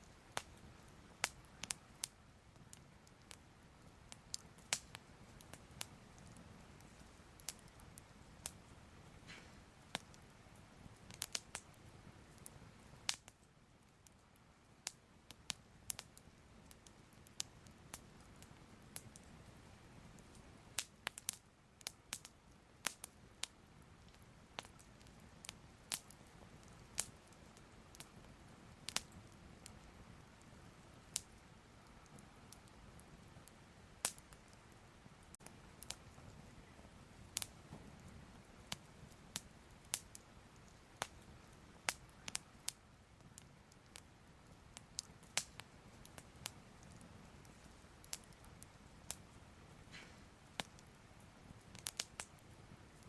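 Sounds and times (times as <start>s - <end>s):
fire crackling: 0.0s - 53.0s.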